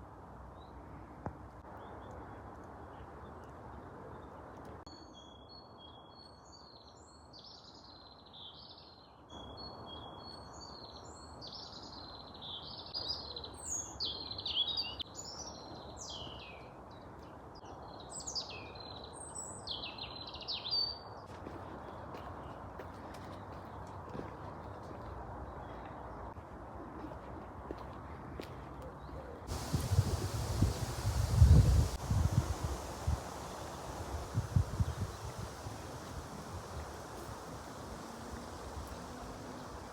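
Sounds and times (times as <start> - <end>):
songbirds singing: 29.0 - 39.9
steady background hiss: 29.5 - 39.9.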